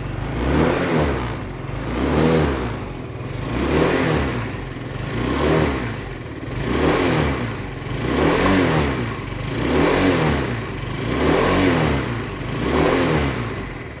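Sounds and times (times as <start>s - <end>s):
scooter engine revving: 0.0s - 14.0s.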